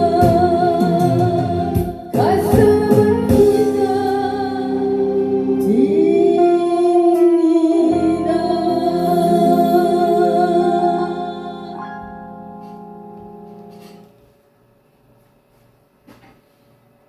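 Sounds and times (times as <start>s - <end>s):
person singing sustained notes: 0.0s - 12.7s
keyboard accompaniment: 0.0s - 14.3s.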